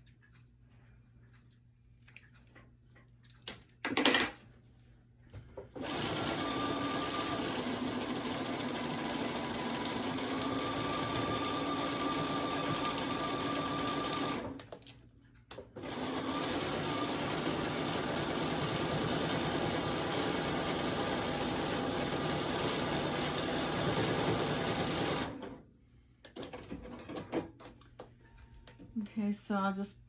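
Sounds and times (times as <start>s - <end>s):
sewing machine stitching: 5.8s - 14.8s, 15.8s - 25.6s.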